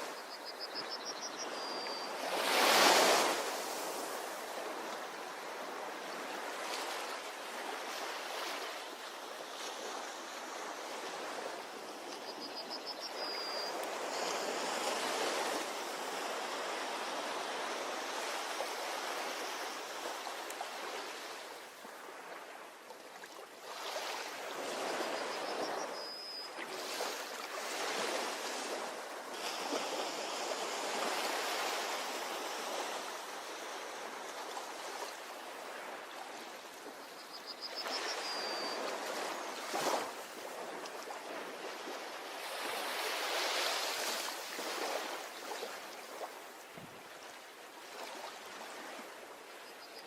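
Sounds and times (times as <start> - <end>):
ocean waves on beach: 0.0 - 49.7.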